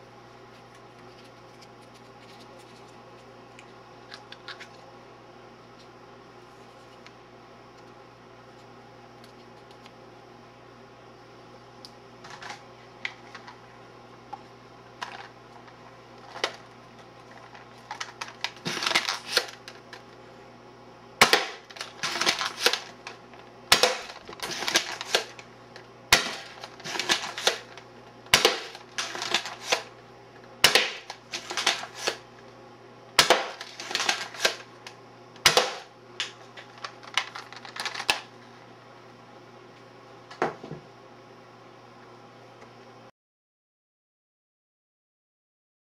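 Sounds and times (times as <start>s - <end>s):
sharp snap of toy blaster: 21.2s - 21.6s, 23.7s - 24.1s, 28.3s - 28.7s, 30.6s - 31.1s, 35.4s - 35.9s.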